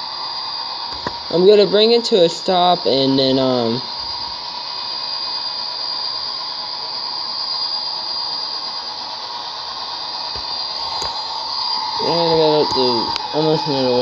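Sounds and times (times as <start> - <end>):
model train whining: 0.0 - 14.0.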